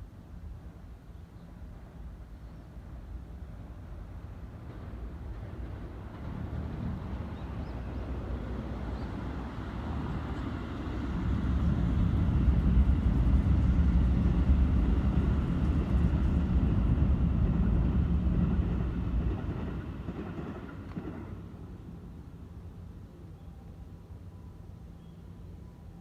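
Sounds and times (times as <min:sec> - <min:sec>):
train wheels rumbling on rail: 0:02.9 - 0:22.3.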